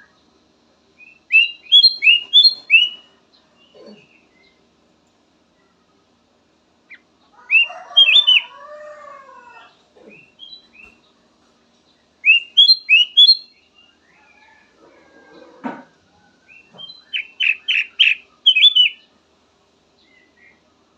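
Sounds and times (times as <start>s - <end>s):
bulbul whistled song: 1.0s - 3.1s, 12.2s - 13.6s, 16.5s - 19.1s
lower bird warbling: 1.0s - 3.1s, 6.9s - 11.0s, 12.2s - 13.6s, 16.5s - 19.1s.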